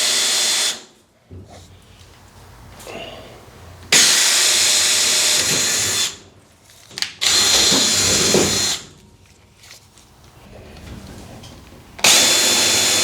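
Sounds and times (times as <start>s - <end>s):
power drill running: 7.2s - 8.8s, 12.0s - 13.0s.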